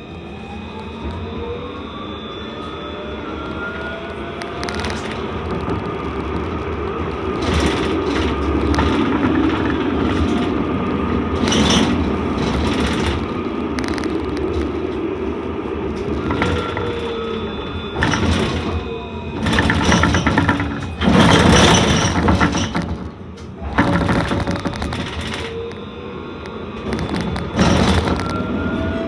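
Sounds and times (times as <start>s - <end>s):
tram wheels rumbling on rails: 0.0s - 29.0s
rattles and clatters: 4.4s - 17.3s, 17.9s - 25.8s, 26.8s - 28.5s.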